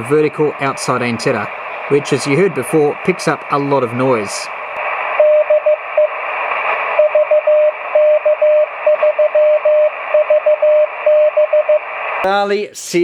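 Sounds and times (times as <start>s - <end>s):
radio band noise hiss: 0.0s - 13.0s
morse code tone: 7.0s - 11.8s.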